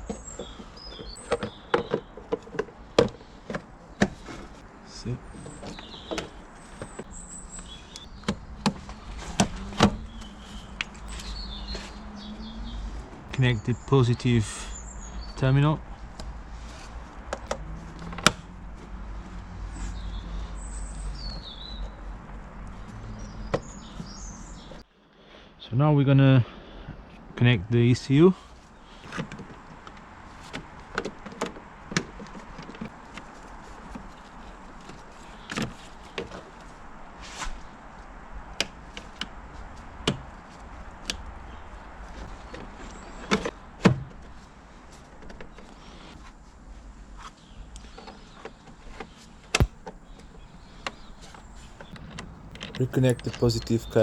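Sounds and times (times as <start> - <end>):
birds chirping: 0.0 - 2.2, 10.0 - 12.9, 49.6 - 54.0.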